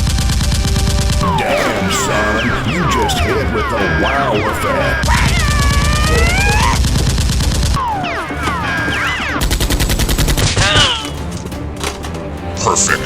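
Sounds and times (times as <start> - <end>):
sliding tones: 1.2 - 10.7.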